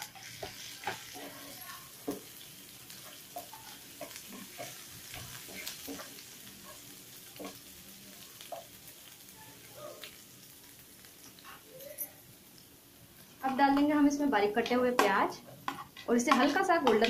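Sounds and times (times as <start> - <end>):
spatula stirring and tapping pan: 0.0 - 9.2, 13.2 - 17.0
food sizzling in hot ghee: 0.0 - 17.0.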